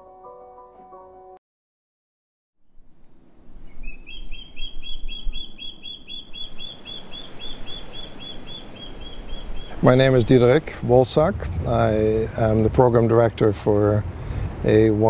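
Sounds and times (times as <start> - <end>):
piano music: 0.0 - 1.4
outdoor ambience hiss: 2.6 - 15.0
bird chirping: 3.4 - 10.7.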